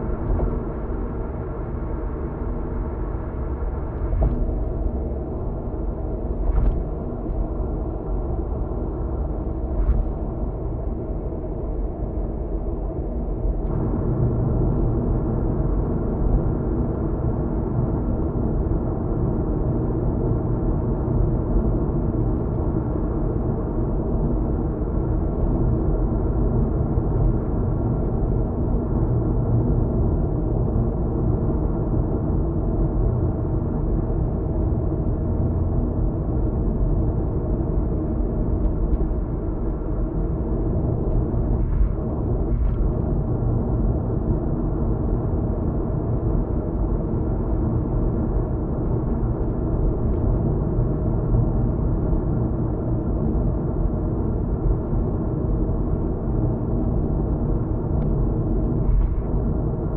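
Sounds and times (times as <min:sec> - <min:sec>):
car interior road noise: 0:00.0 - 0:18.2, 0:32.6 - 0:59.9.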